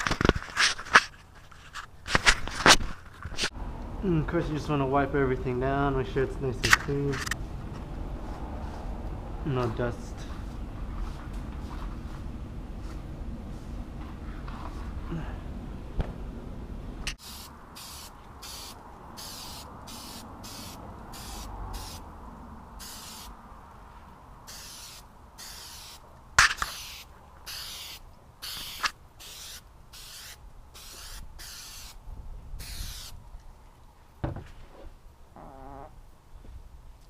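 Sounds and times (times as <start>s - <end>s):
aerosol spray hissing bursts: 17.2s - 22.0s, 22.8s - 23.3s, 24.5s - 26.0s, 26.6s - 32.0s, 32.6s - 33.2s.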